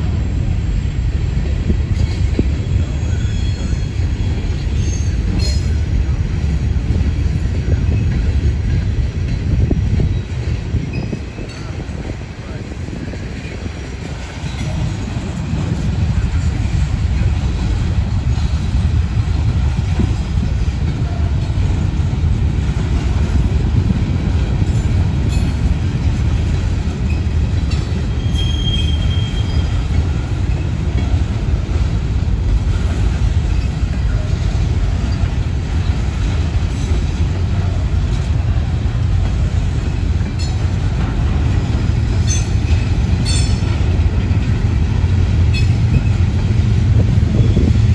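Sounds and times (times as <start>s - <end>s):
train wheels rumbling on rail: 0.0s - 47.9s
high wheel squeal: 2.6s - 5.7s, 28.0s - 30.6s.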